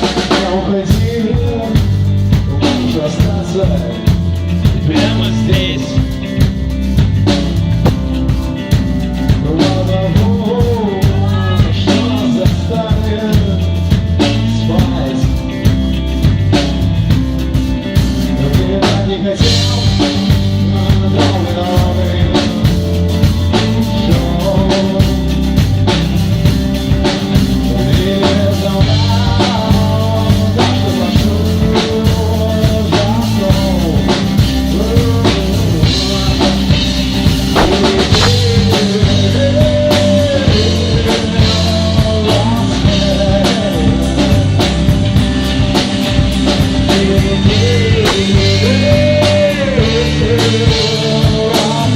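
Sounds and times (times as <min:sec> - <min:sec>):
band playing loud music: 0:00.0 - 0:51.9
drum kit hitting: 0:37.4 - 0:39.3, 0:47.6 - 0:49.6.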